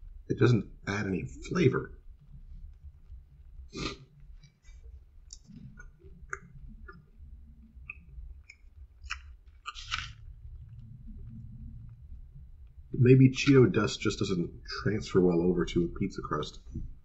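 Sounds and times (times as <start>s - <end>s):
mouth clicks and smacks: 2.0s - 13.8s
chewing pizza crust: 2.2s - 12.1s.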